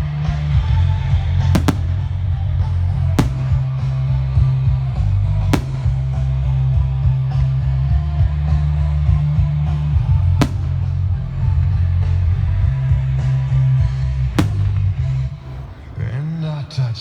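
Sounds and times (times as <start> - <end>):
firework bangs: 0.0 - 17.0.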